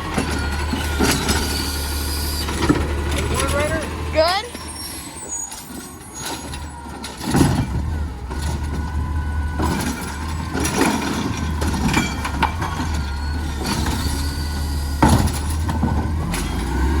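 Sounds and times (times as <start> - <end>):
garbage truck engine running: 0.0 - 17.0
truck equipment knocks and clanks: 0.0 - 17.0.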